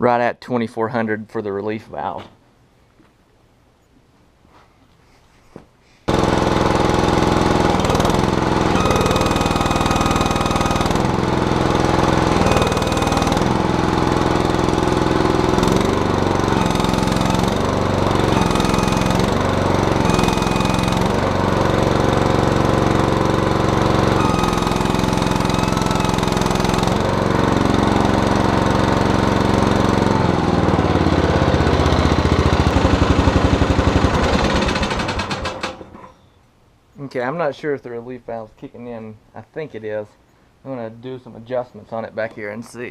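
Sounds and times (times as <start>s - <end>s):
backhoe engine under load: 6.1s - 36.2s.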